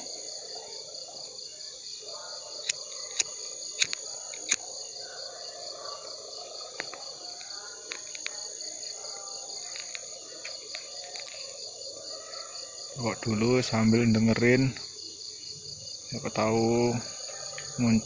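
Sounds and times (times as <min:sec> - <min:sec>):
crickets trilling: 0:00.0 - 0:18.0
sharp clicks: 0:02.6 - 0:04.6.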